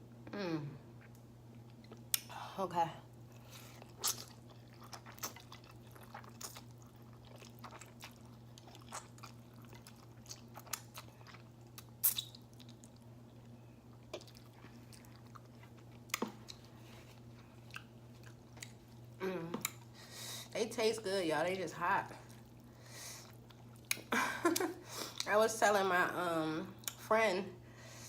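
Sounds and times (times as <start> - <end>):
faint low hum: 0.0 - 28.0
chewing noodles: 3.3 - 19.9.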